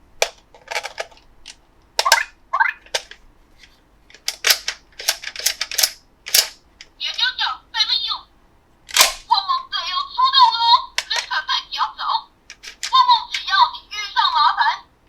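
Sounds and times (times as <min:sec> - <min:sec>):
plastic toy pieces clicking: 0:00.2 - 0:01.2, 0:02.0 - 0:03.2, 0:04.1 - 0:06.9, 0:08.9 - 0:09.3, 0:10.5 - 0:11.4, 0:12.5 - 0:13.5.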